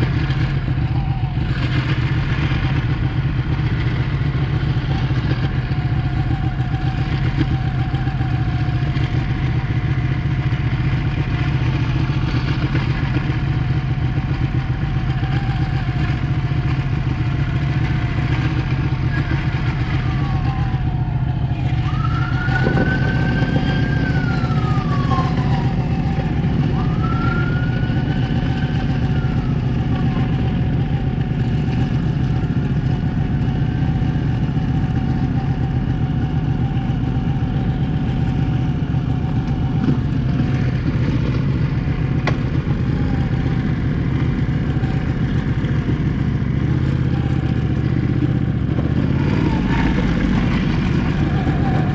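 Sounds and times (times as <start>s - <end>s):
motorcycle engine running: 0.0s - 51.9s
siren rising and falling: 19.7s - 30.8s, 48.7s - 51.9s.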